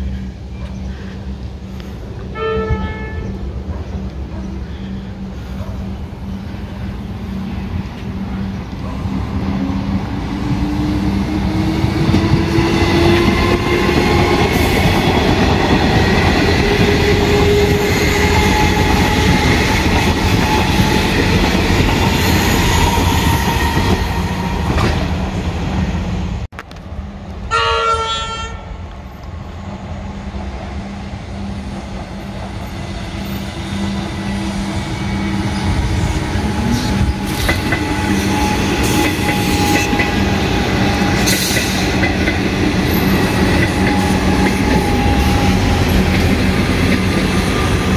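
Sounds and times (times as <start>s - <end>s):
train wheels rumbling on rails: 0.0s - 27.5s, 28.8s - 47.9s
train horn blast: 2.3s - 3.5s, 27.5s - 28.7s.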